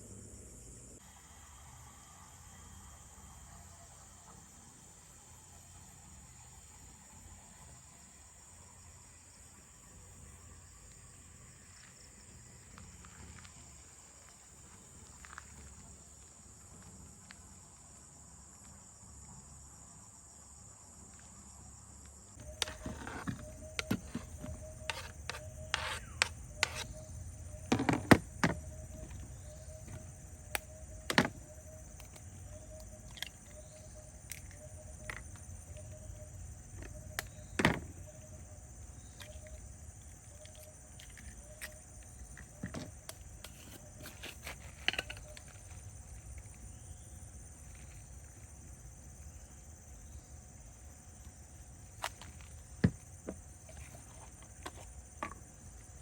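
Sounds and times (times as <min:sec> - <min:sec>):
insects buzzing: 0:00.0 - 0:56.0
sharp clicks and knocks: 0:22.4 - 0:32.2.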